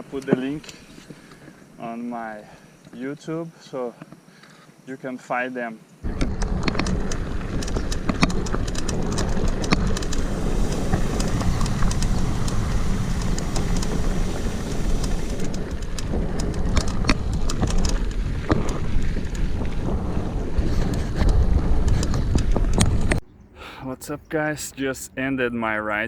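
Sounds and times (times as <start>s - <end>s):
bike clicks and rattles: 6.0s - 23.2s
wind buffeting microphone: 6.0s - 23.6s.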